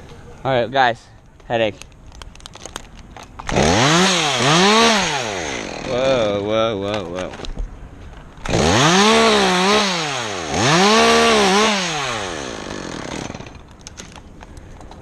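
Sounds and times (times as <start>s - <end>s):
chainsaw revving: 3.5s - 6.4s, 8.4s - 13.7s.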